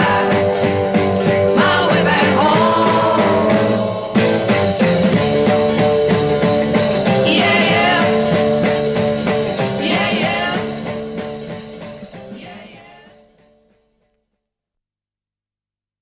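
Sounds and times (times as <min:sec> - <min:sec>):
rock band playing: 0:00.0 - 0:12.8.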